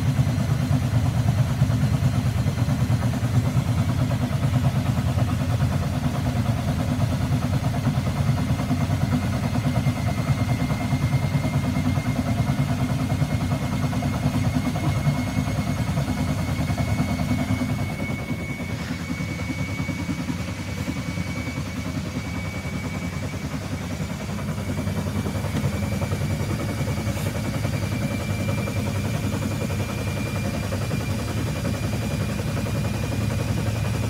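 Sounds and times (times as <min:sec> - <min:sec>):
washing machine rumble: 0:00.0 - 0:34.0
high motor whine: 0:07.3 - 0:34.0.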